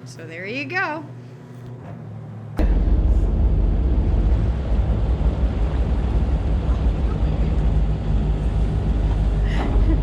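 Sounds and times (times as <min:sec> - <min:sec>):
boat engine running: 0:02.4 - 0:10.0.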